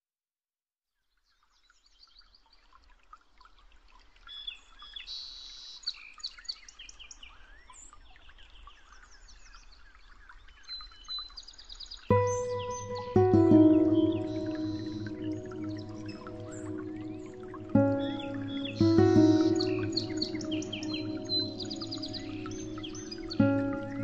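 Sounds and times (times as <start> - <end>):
birds chirping and calling: 12.1 - 24.0.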